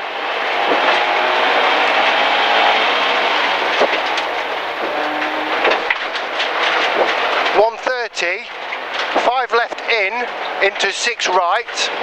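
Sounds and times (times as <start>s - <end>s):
car engine running under load: 0.0s - 12.0s
tyres on gravel: 2.1s - 12.0s.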